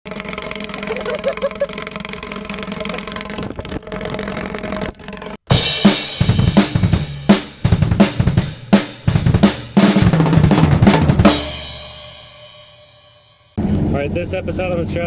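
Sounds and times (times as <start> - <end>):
drum kit solo: 5.5 - 13.4
cymbal crash: 11.2 - 13.9.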